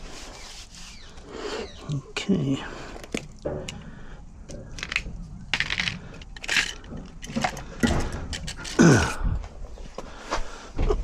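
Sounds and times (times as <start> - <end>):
small metal parts clicking: 4.5 - 8.9.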